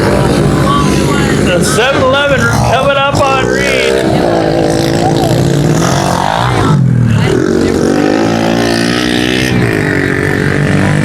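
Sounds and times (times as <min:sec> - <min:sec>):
pit bike engines revving: 0:00.0 - 0:11.0.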